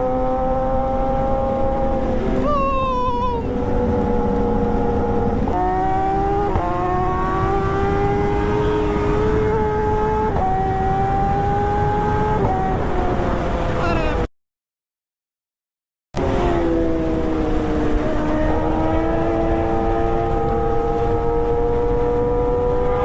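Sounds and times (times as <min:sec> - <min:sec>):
vehicle engine running: 0:00.8 - 0:08.1.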